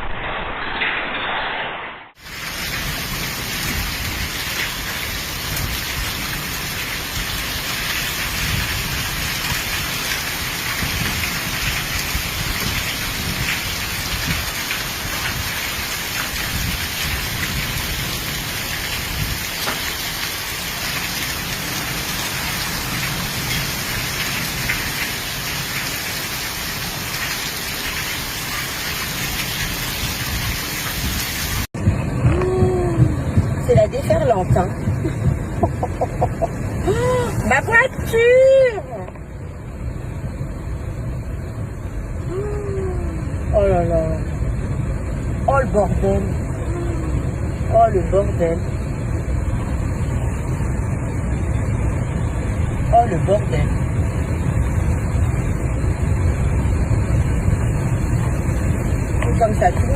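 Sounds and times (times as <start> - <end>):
heavy rain pouring: 2.1 - 59.9
low rumbling: 31.7 - 59.9.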